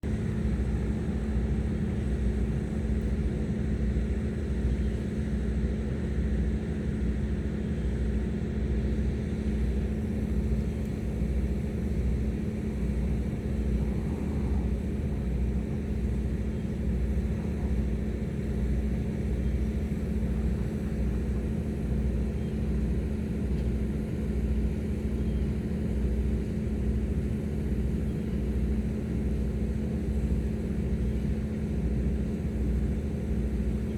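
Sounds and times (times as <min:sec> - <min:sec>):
ferry engines droning: 0:00.0 - 0:33.9.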